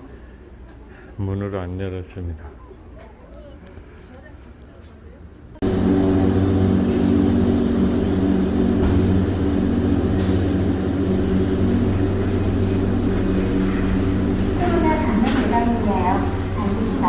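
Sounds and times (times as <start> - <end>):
large machine droning: 5.6 - 17.0.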